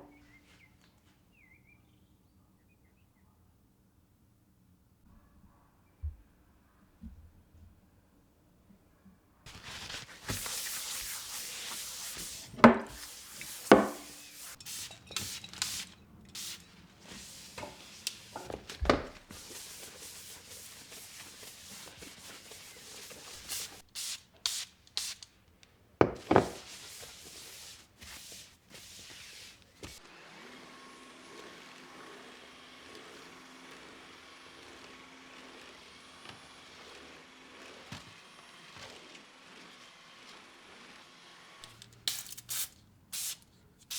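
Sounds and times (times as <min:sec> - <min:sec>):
brush scrubbing hard surface: 0:09.5 - 0:25.2, 0:26.0 - 0:30.0.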